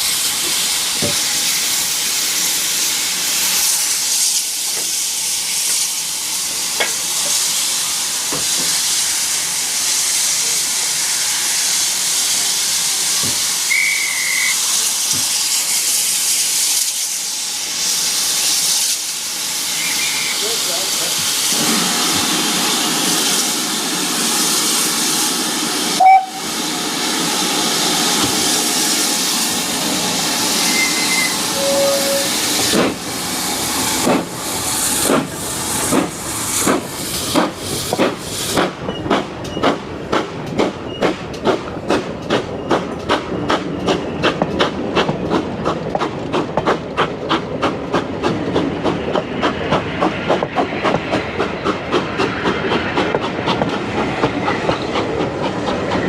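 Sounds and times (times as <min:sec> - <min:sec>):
steam locomotive hissing: 0:00.0 - 0:56.0
locomotive whistle blast: 0:13.7 - 0:14.6, 0:26.0 - 0:26.5, 0:30.6 - 0:32.4.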